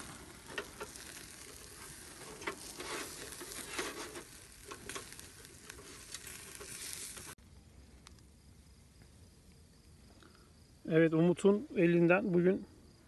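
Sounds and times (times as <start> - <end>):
food sizzling on charcoal grill: 0.0 - 7.4.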